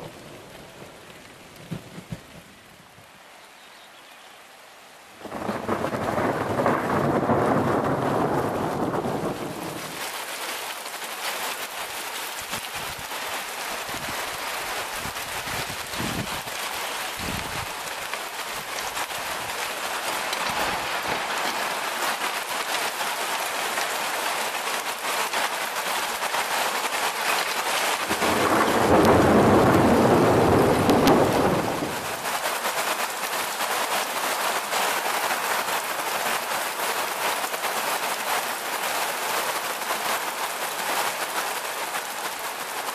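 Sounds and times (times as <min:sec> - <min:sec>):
heavy rain pouring: 0:00.0 - 0:42.9
thunder rumbling: 0:05.2 - 0:10.0, 0:28.0 - 0:32.2.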